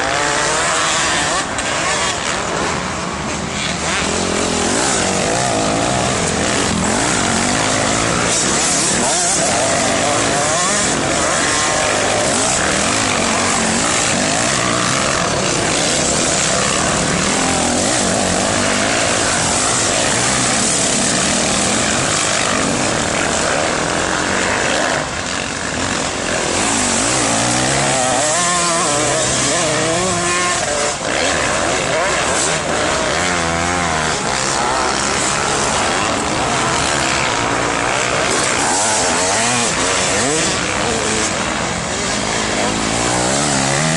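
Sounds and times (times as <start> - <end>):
dirt bike engines revving: 0.0 - 43.9.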